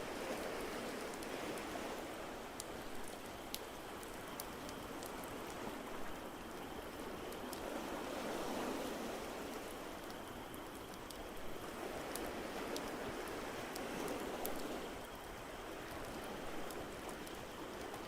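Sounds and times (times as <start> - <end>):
ocean surf: 0.0 - 3.0, 6.9 - 10.0.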